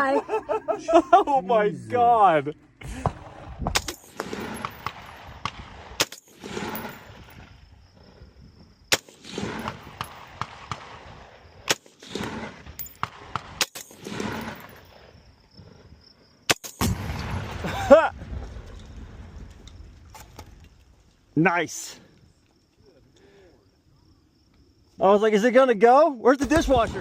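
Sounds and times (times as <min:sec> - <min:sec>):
gunshots with rolling echo: 0:03.0 - 0:07.4, 0:08.9 - 0:15.0, 0:16.5 - 0:18.5, 0:26.4 - 0:27.0.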